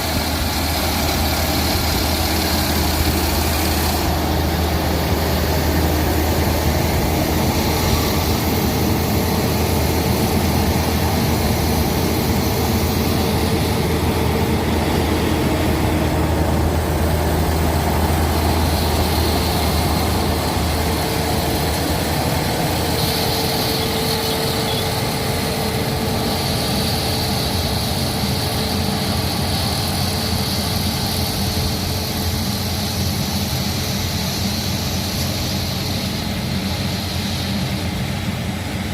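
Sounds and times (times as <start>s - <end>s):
combine harvester engine running: 0.0s - 38.9s.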